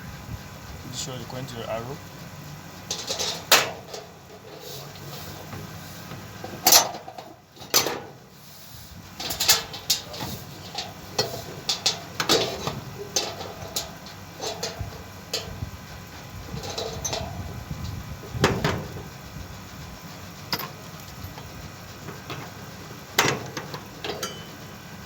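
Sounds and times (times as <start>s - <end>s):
metal parts clinking: 2.9s - 5.5s, 6.6s - 8.0s, 9.2s - 15.6s, 16.5s - 17.5s, 20.5s - 22.6s, 23.2s - 24.6s.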